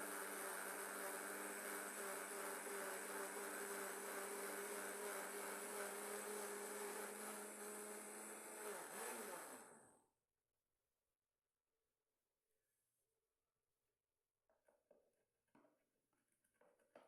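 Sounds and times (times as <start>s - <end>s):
blender motor running: 0.0s - 10.0s.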